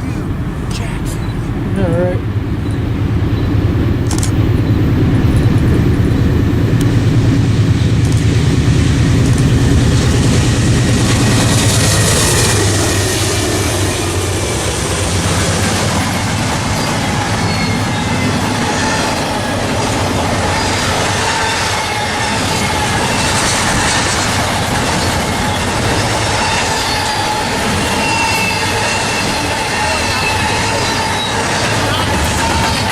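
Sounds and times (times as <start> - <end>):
train rumbling past: 0.0 - 32.9
wheel squeal: 16.7 - 19.6, 24.9 - 32.9.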